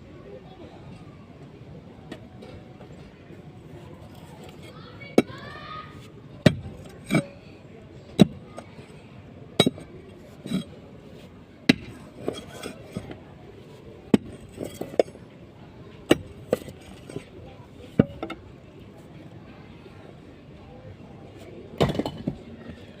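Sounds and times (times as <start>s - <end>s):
hand tool striking metal: 9.6s - 9.9s.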